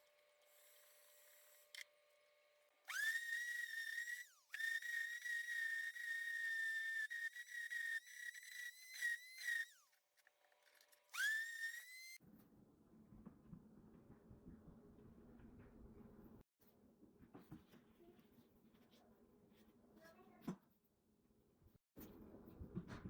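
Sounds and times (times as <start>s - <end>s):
small power tool whining: 0.0s - 12.2s.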